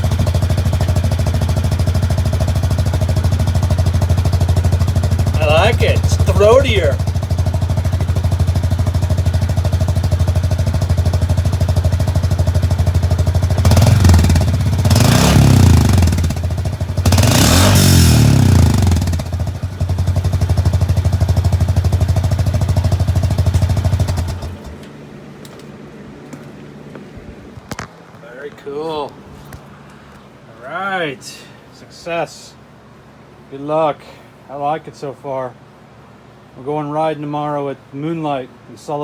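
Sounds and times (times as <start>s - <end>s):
engine revving: 0.0s - 8.2s, 8.8s - 21.3s, 23.1s - 24.8s
utility vehicle engine idling: 0.0s - 27.3s.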